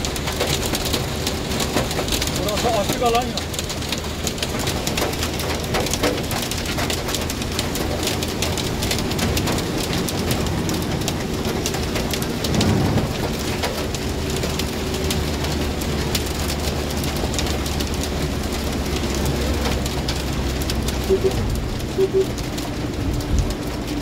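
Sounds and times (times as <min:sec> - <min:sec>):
heavy rain drumming on vehicle roof: 0:00.0 - 0:24.0
tyres on a wet road: 0:00.0 - 0:24.0
engine drone: 0:18.5 - 0:22.7.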